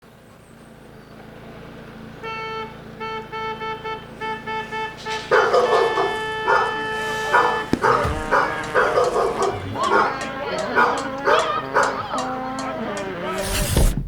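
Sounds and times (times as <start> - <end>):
traffic noise: 0.0 - 13.4
car horn honking: 1.6 - 13.4
dog barking: 5.0 - 12.8.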